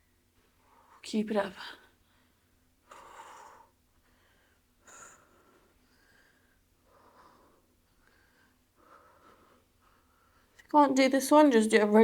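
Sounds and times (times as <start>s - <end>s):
person breathing while exercising: 1.9s - 10.6s.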